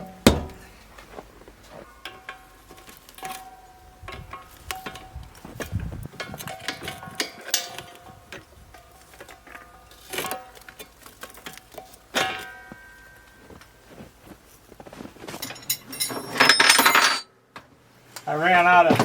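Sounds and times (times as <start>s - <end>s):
louder knocks: 0.0s - 0.7s.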